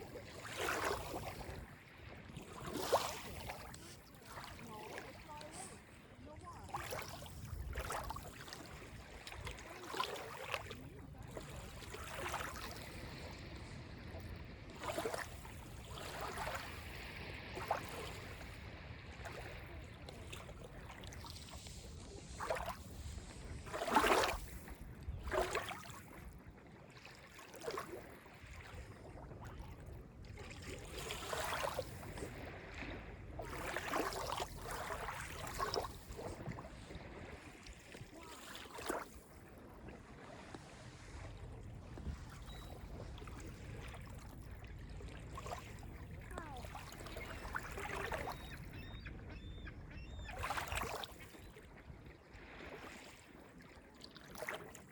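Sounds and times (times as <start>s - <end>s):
small waves lapping on beach: 0.0s - 54.9s.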